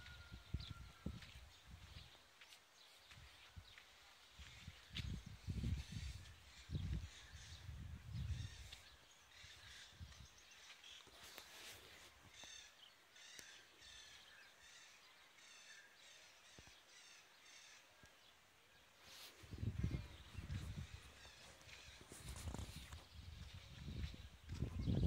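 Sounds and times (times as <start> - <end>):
faint rural ambience: 0.0 - 25.0.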